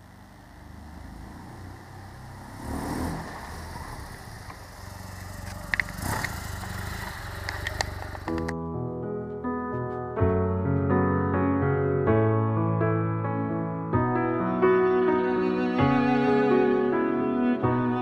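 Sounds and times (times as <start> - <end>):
motorcycle engine running: 0.0 - 8.5
sharp clicks: 7.0 - 8.6.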